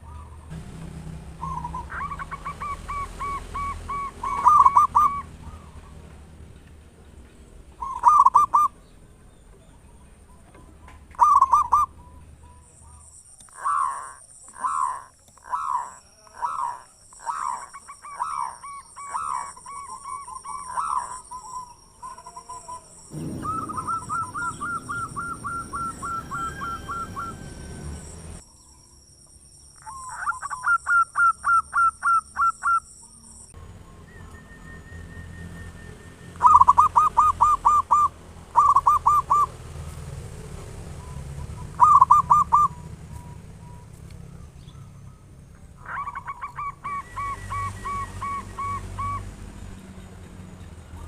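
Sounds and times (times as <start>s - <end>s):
doves cooing: 0.0s - 6.3s, 7.8s - 8.8s, 10.4s - 12.6s, 13.5s - 28.4s, 36.4s - 45.0s, 45.7s - 49.6s.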